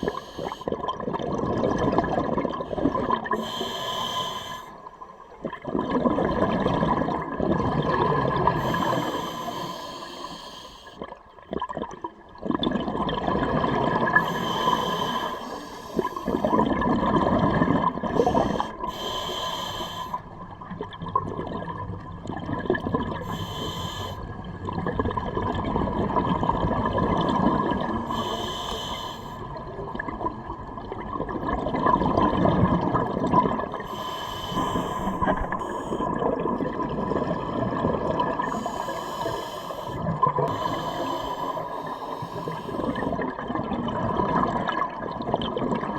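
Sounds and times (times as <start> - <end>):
diver breathing through regulator: 0.0 - 0.7, 2.7 - 4.9, 8.4 - 11.0, 14.1 - 16.6, 18.0 - 20.4, 23.2 - 24.4, 27.9 - 29.6, 33.8 - 36.2, 38.4 - 43.2
gurgling bubbles: 0.0 - 10.4, 11.0 - 45.9
faint steady hum: 12.3 - 45.9.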